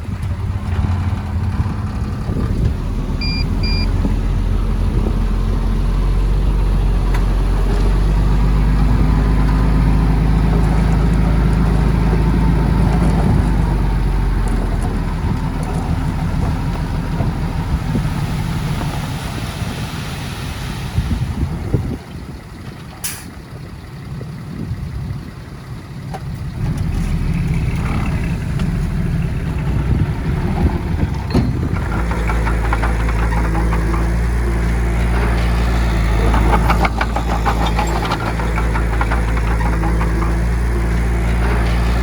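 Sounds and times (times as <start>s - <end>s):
heavy diesel engine running: 0.0s - 42.0s
short high beeps: 3.2s - 3.9s.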